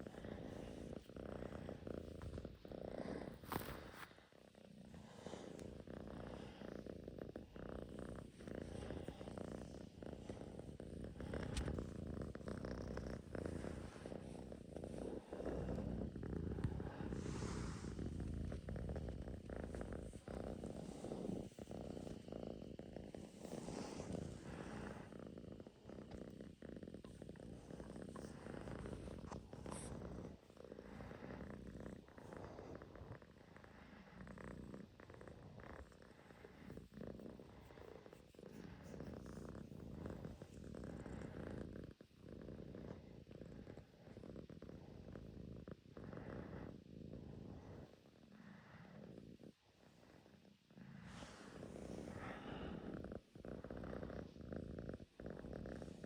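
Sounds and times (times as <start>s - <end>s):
cat purring: 0.0s - 56.0s.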